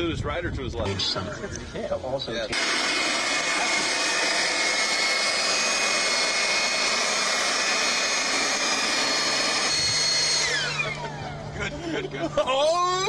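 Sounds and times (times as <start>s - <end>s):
leaf blower running: 2.5s - 12.4s.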